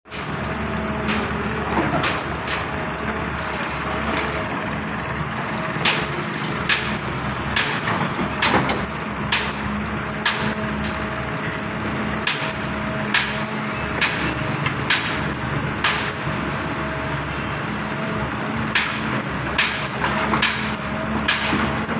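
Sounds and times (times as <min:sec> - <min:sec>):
diesel engine of heavy machinery: 0:00.0 - 0:21.9
sharp knocks and clanks: 0:01.0 - 0:02.7, 0:05.8 - 0:11.0, 0:12.2 - 0:17.4, 0:18.0 - 0:21.9.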